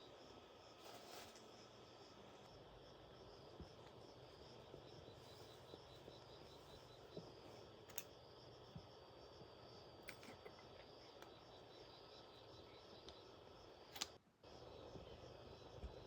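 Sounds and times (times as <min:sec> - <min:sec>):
insects chirping: 0:00.0 - 0:16.0
small sharp clicks: 0:13.9 - 0:14.2.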